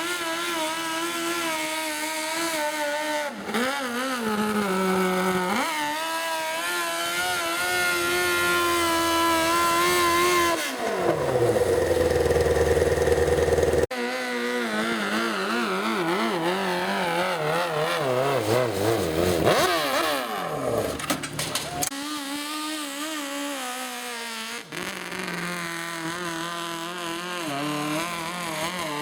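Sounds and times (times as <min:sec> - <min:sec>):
garden tractor engine running: 0:09.4 - 0:13.9.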